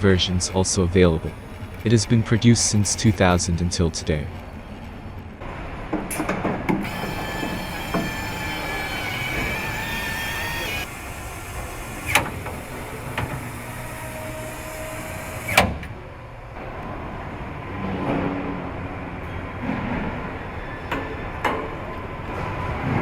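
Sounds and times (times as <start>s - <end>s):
machinery whining tones: 0.0s - 17.8s
low machinery hum: 0.0s - 23.0s.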